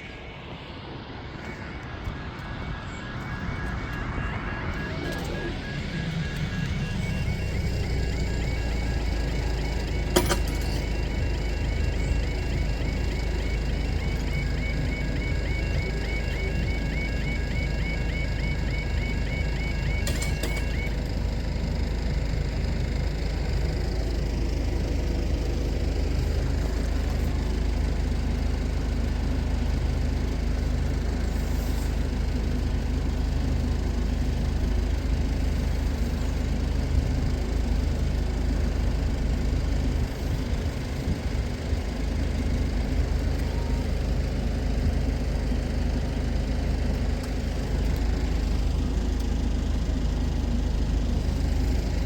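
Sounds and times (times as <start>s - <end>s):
low rumble: 0.0s - 10.1s
level crossing warble alarm: 0.0s - 52.0s.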